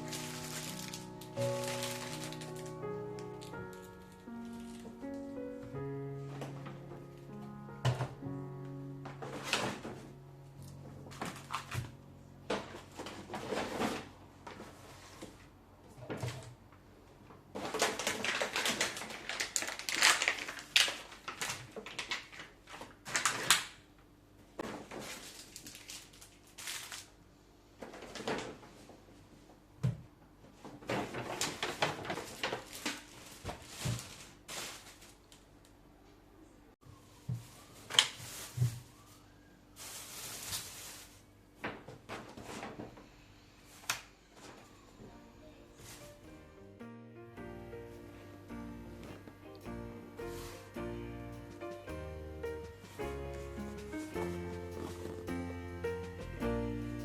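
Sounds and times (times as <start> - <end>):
rustling: 0.0 - 8.2, 9.1 - 16.5, 30.5 - 35.5, 37.1 - 41.4, 47.7 - 57.0.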